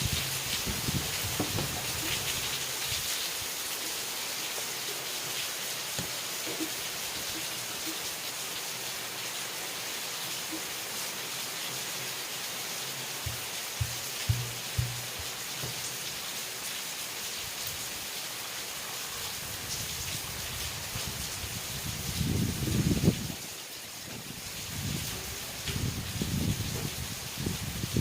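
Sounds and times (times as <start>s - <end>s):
raindrop ticks: 0.0s - 3.0s, 13.3s - 16.1s
rain falling: 0.0s - 28.0s
short low thumps: 13.3s - 15.9s.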